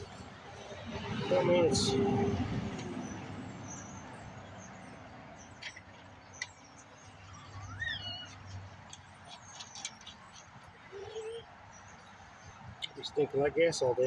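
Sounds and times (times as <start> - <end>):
bird call rising and falling: 7.1 - 8.6.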